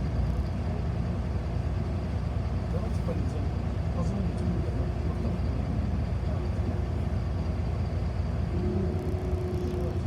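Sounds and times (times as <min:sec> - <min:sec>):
bus drivetrain and road rumble: 0:00.0 - 0:10.0.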